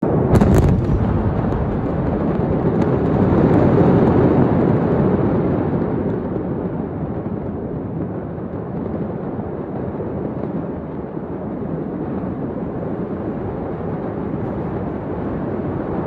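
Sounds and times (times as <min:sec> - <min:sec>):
explosion rumble: 0:00.0 - 0:05.9.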